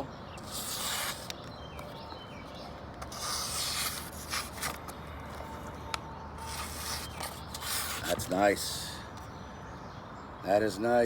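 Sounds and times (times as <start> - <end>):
knife slicing through paper: 0.4 - 1.3, 3.0 - 4.8, 6.4 - 8.2.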